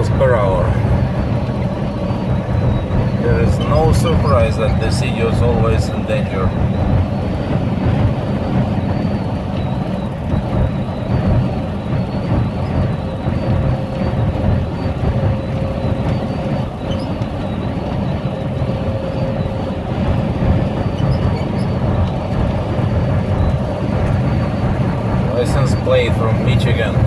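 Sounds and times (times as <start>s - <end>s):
faint steady tone: 0.0s - 7.5s
car road and engine noise: 0.0s - 27.0s.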